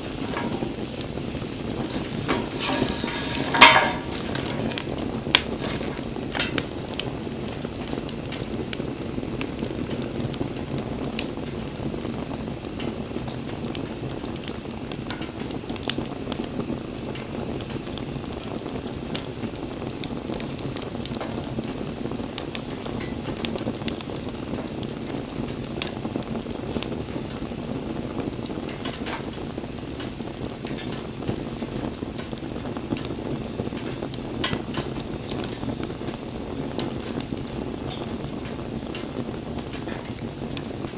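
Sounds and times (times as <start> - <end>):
flame rushing: 0.0 - 16.7
bonfire crackling and popping: 0.0 - 40.9.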